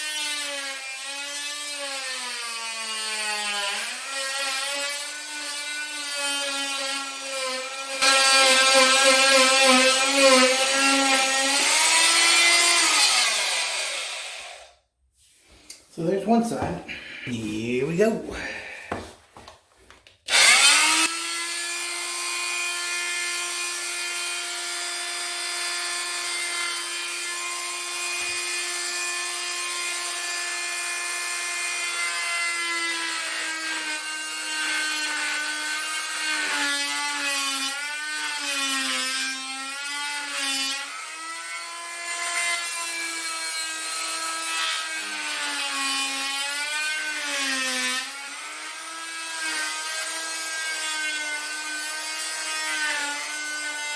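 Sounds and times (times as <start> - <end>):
saw cutting wood: 0.0 - 14.8, 20.3 - 53.9
power saw whining: 7.1 - 14.7, 20.3 - 28.8.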